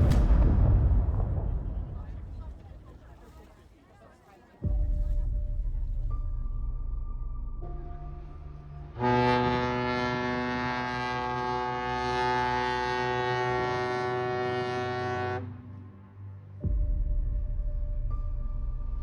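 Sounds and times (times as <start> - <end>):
ship's horn long blast: 8.9 - 15.9.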